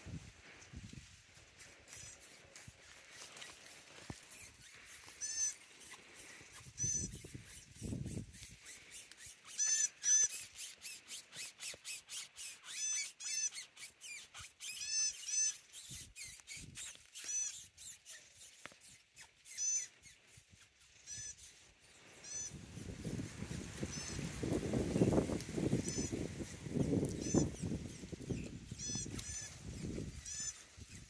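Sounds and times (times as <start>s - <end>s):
bird chirping: 4.1s - 22.9s, 25.8s - 31.0s.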